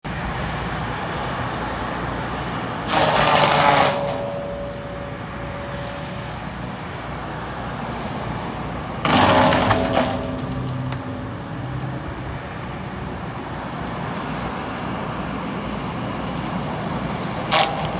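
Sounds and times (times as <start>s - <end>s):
skid steer engine running: 2.6s - 6.8s, 8.5s - 13.2s, 17.1s - 17.9s
brush cutter grinding wood: 2.9s - 5.0s, 9.0s - 11.0s, 17.5s - 17.9s.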